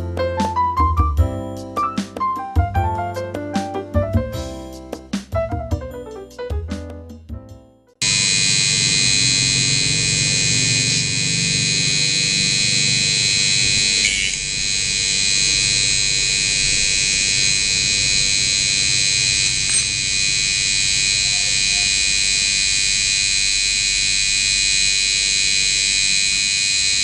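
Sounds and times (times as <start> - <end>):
electric mini grinder whining: 8.0 - 27.0.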